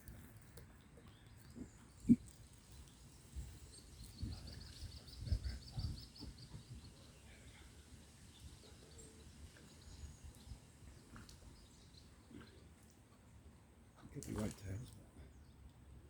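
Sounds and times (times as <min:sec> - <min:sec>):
faint bird chirps: 0:01.0 - 0:12.7.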